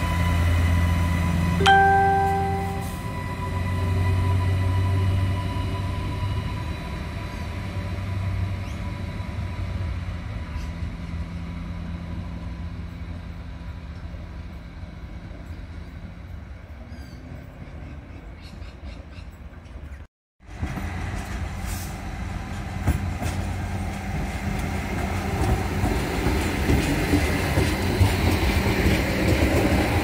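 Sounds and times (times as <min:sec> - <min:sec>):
train rumbling with whine: 0:00.0 - 0:18.6, 0:20.4 - 0:30.0.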